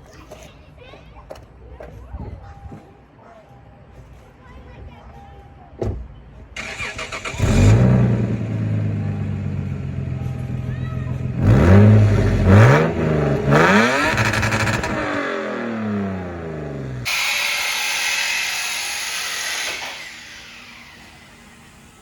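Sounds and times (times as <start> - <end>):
car engine revving: 6.6 - 10.1, 11.2 - 17.3
loud steady hiss: 17.1 - 22.0.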